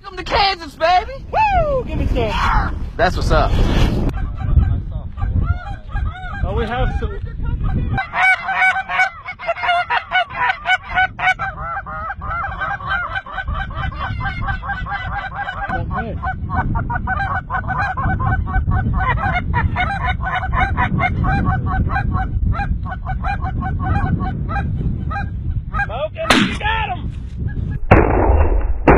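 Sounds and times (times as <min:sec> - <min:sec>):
geese honking: 0:07.9 - 0:25.9
low rumble: 0:15.7 - 0:28.9.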